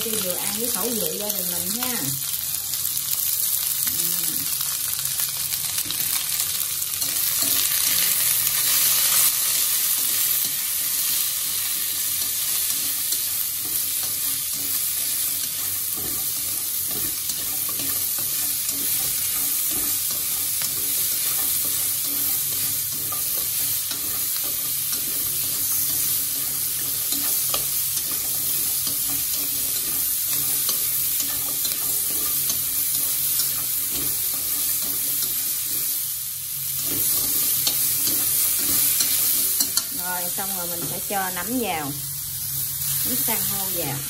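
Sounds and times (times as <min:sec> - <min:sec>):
oil sizzling in a wok: 0:00.0 - 0:44.0
chopsticks clicking against pan: 0:37.6 - 0:40.0.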